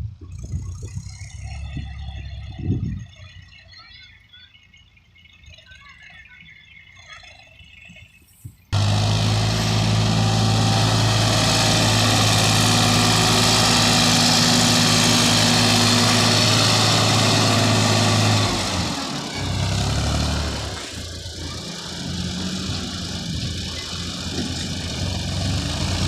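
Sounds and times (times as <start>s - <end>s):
backhoe diesel engine running: 8.7s - 26.0s.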